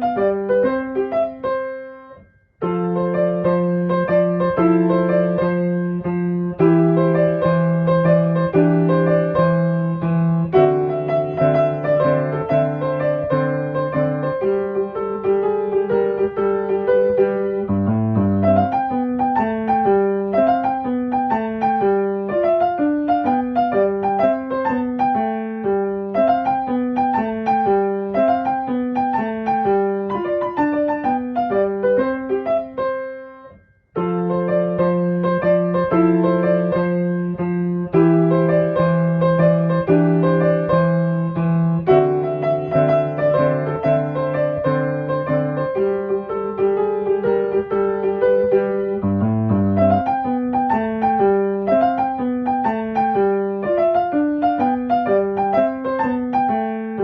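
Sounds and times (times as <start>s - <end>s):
piano music: 0.0s - 57.0s.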